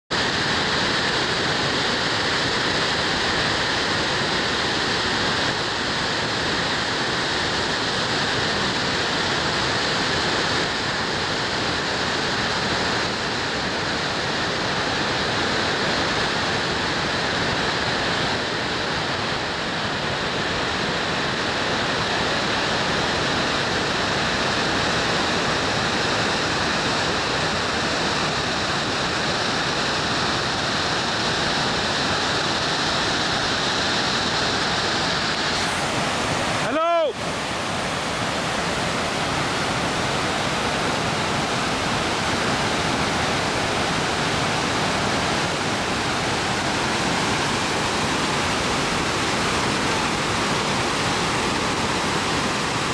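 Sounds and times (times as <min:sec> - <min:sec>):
river rushing: 0:00.1 - 0:52.9.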